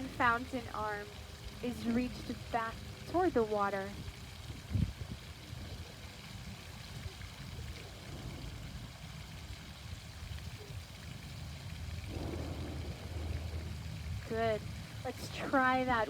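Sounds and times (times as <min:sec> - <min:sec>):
fountain splashing: 0:00.0 - 0:16.0
low rumble: 0:07.7 - 0:16.0.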